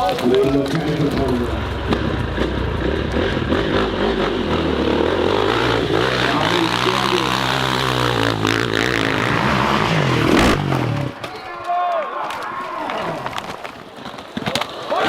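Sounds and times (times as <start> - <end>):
dirt bike engine revving: 0.5 - 11.2.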